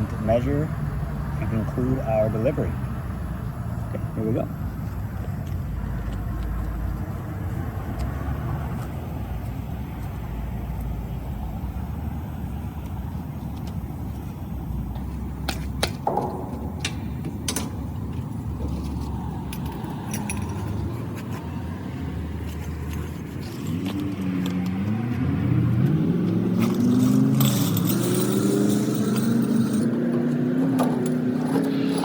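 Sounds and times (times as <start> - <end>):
vehicle engine rumble: 0.0 - 32.0
metal hose fittings clanking: 16.0 - 21.4.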